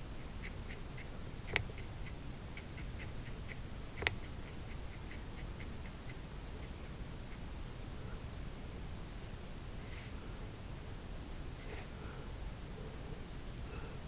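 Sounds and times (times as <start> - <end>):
faint even ticking: 0.2 - 7.5.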